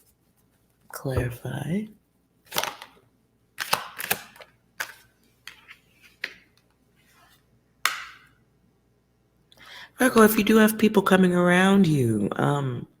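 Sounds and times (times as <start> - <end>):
cards clicking and slapping: 2.5 - 3.0, 3.6 - 6.8, 7.8 - 8.3.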